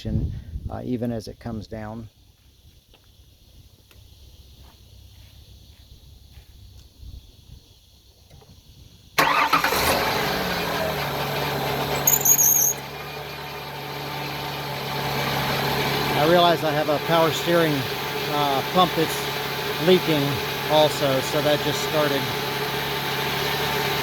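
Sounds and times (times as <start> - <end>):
car engine starting and idling: 8.3 - 24.0.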